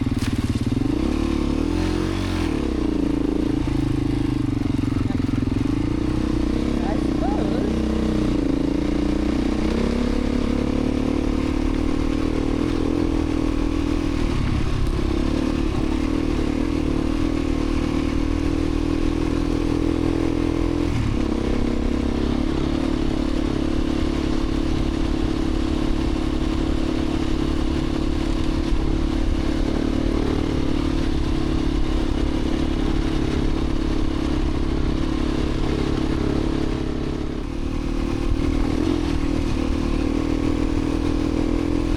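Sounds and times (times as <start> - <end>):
dirt bike engine running: 0.0 - 41.9.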